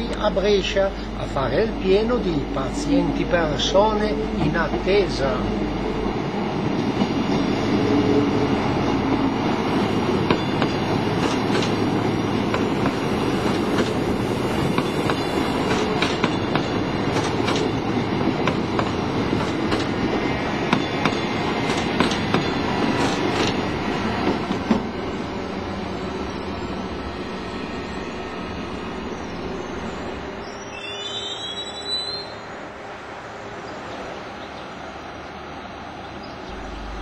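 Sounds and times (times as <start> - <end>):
diesel train engine running: 0.0 - 26.6, 36.5 - 37.0
wheels clicking over rail joints: 10.2 - 14.1, 14.7 - 20.0.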